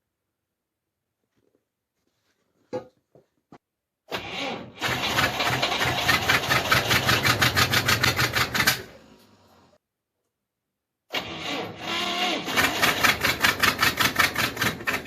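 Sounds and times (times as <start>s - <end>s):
engine cranking by starter motor: 4.1s - 9.4s, 11.1s - 15.0s.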